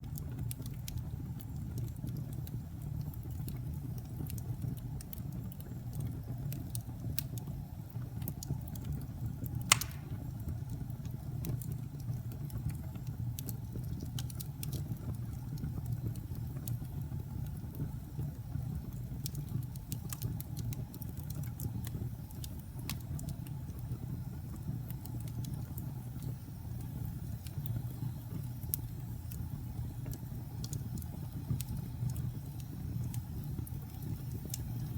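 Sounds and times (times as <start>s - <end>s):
fire crackling: 0.0s - 34.9s.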